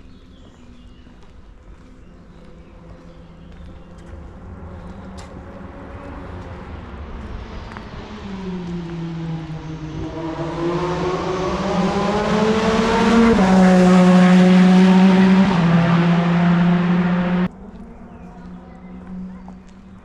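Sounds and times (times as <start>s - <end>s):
racing car engine shifting up: 7.5s - 17.5s.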